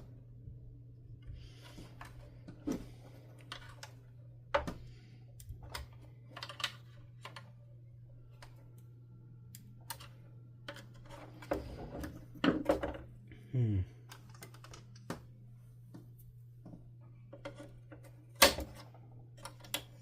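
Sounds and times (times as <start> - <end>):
steady low hum: 0.0 - 20.0
plastic parts and tools clicking: 5.4 - 7.6, 14.1 - 15.2, 17.3 - 20.0.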